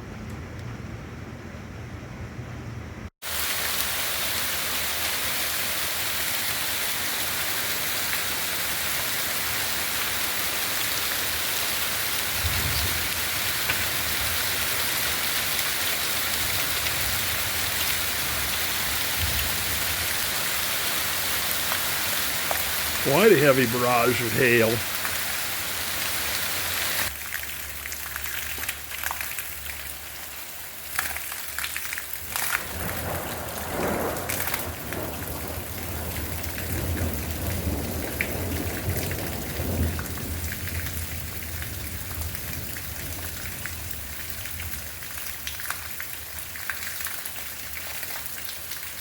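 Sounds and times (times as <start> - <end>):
hail pattering on roof: 11.6 - 25.2, 30.9 - 44.0.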